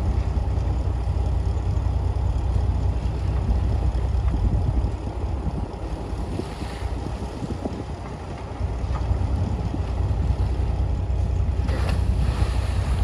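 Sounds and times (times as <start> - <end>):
heavy diesel machinery rumbling: 0.0 - 13.0.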